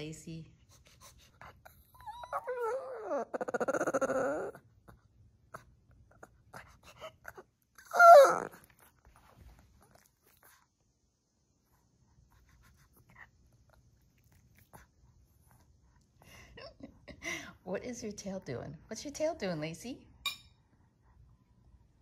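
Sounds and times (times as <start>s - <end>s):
dog whine-growl: 1.7s - 4.7s, 7.2s - 8.7s
dog yip: 7.8s - 8.6s.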